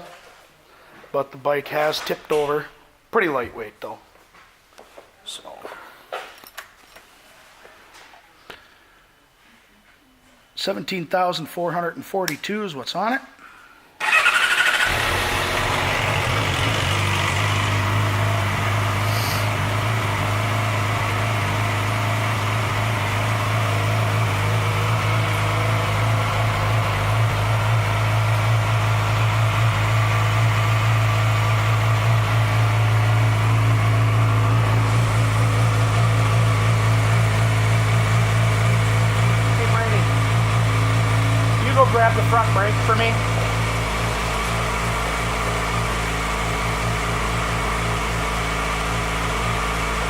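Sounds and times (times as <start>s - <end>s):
motorcycle engine idling: 14.0s - 50.0s.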